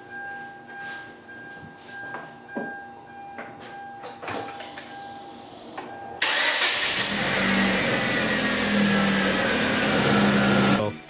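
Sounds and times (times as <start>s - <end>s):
starter motor cranking: 6.2s - 10.8s
car engine idling: 6.2s - 10.9s.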